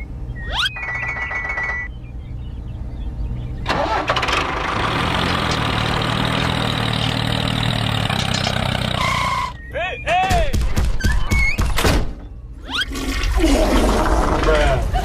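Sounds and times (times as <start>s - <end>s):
tractor engine running: 3.5s - 9.6s.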